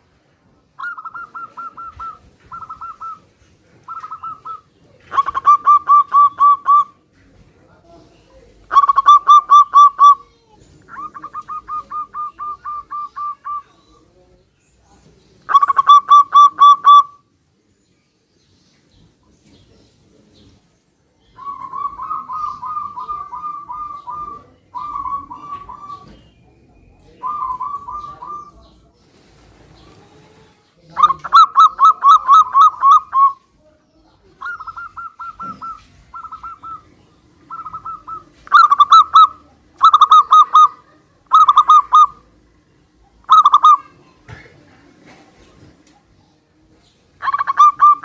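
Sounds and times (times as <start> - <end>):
doves cooing in trills: 0.8 - 7.0, 8.7 - 10.2, 10.9 - 13.7, 15.5 - 17.2, 21.4 - 26.3, 27.1 - 28.7, 31.0 - 33.4, 34.4 - 36.9, 37.5 - 42.3, 43.2 - 43.9, 47.2 - 48.0.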